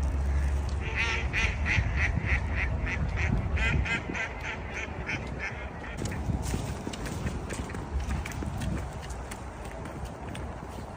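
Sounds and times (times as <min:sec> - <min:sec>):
duck quacking: 0:00.4 - 0:06.2.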